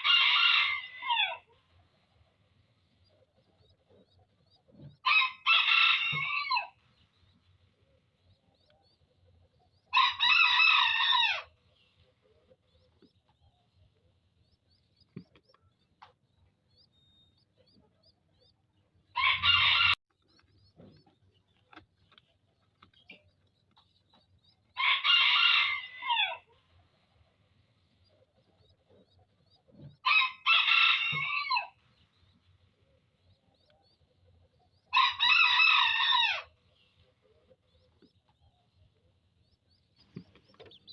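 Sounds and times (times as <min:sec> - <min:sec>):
rooster crowing: 0:00.0 - 0:01.5, 0:05.0 - 0:06.8, 0:19.2 - 0:20.0, 0:24.8 - 0:26.5, 0:30.0 - 0:31.8, 0:34.9 - 0:36.5.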